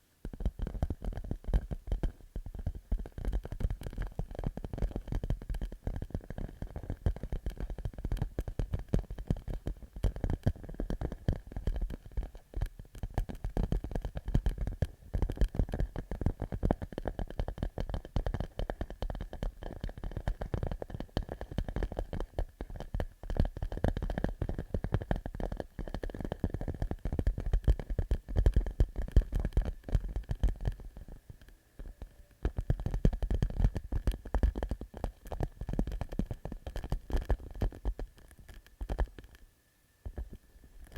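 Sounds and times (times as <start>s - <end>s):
fingertips tapping plastic pouch: 0.3s - 39.4s.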